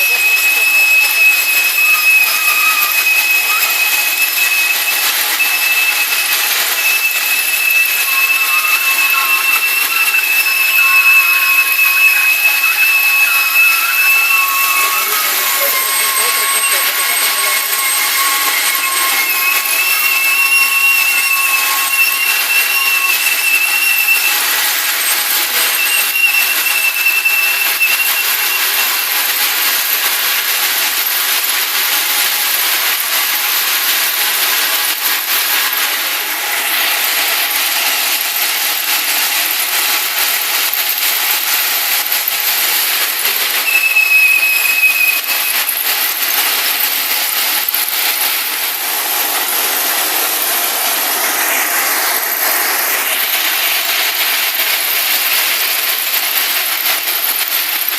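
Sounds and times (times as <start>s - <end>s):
train metallic grinding: 0.0s - 28.0s
high-pitched squeals: 0.0s - 57.9s.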